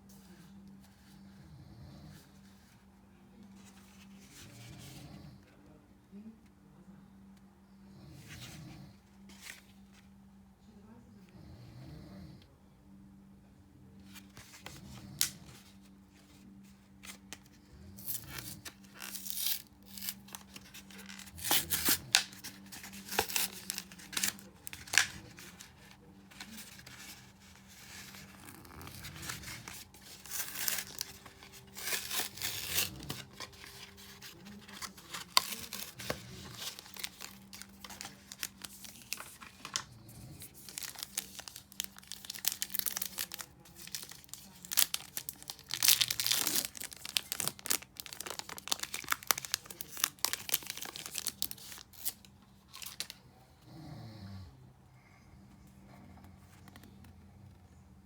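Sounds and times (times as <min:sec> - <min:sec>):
foil wrappers tearing and crinkling: 0:17.0 - 0:53.2.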